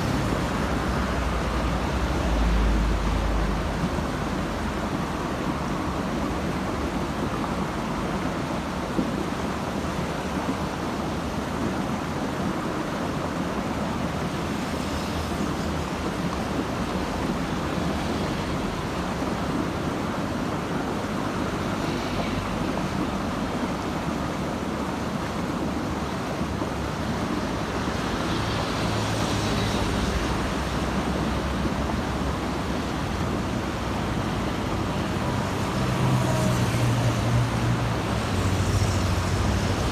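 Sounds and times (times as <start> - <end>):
road traffic rushing: 0.0 - 4.8, 14.3 - 24.1, 26.7 - 39.9
heavy vehicle passing: 27.6 - 39.9.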